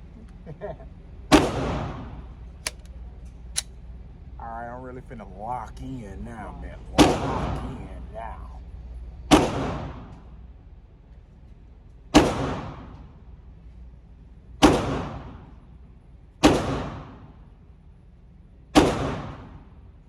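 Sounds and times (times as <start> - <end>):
pistol shots echoing indoors: 1.3 - 2.1, 7.0 - 7.6, 9.3 - 10.2, 12.1 - 13.2, 14.6 - 15.6, 16.4 - 17.5, 18.7 - 19.8.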